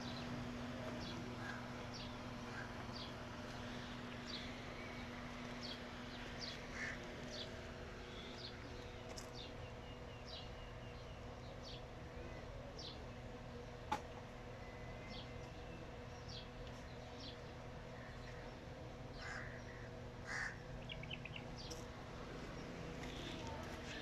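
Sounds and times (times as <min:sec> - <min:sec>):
steady low hum: 0:00.0 - 0:24.0
bird chirping: 0:20.8 - 0:21.9.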